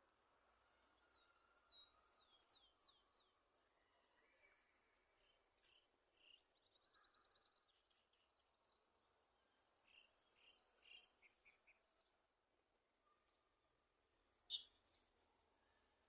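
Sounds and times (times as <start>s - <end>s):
bird chirps: 0.8s - 3.4s, 4.2s - 12.3s, 14.4s - 15.1s
bird trilling: 14.5s - 14.7s.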